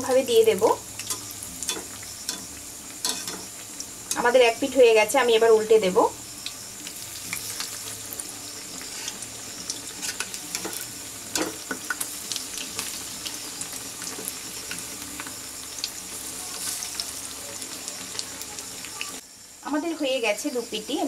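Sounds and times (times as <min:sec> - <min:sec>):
pakoras sizzling in hot oil: 0:00.0 - 0:21.0
metal spatula knocking pan: 0:01.1 - 0:03.5, 0:10.0 - 0:12.0.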